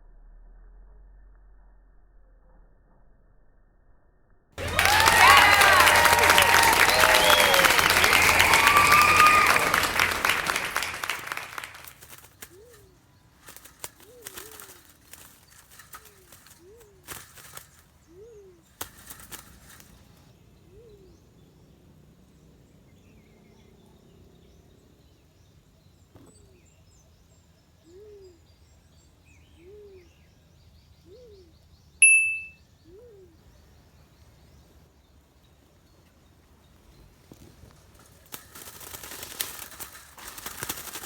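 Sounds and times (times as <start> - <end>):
sharp high-pitched chirp: 32.0 - 32.6.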